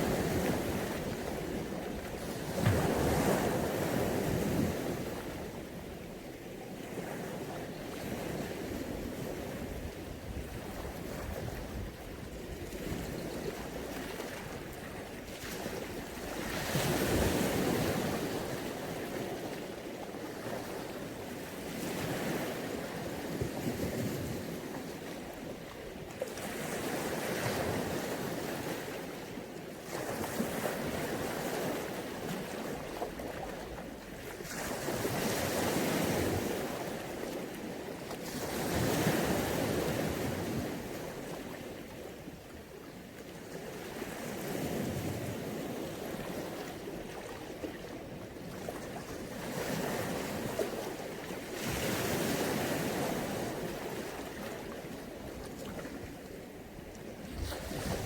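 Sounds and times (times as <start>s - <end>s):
sea waves washing onto beach: 0.0s - 5.8s.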